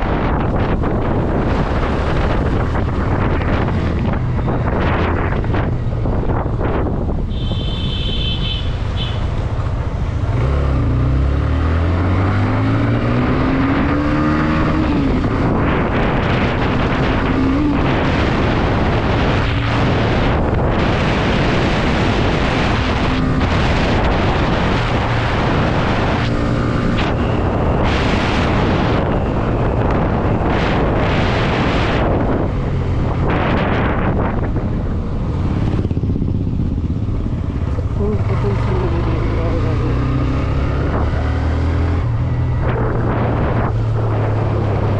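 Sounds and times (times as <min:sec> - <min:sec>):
wind noise on microphone: 0:00.0 - 0:44.9
motorcycle engine accelerating: 0:09.0 - 0:44.9.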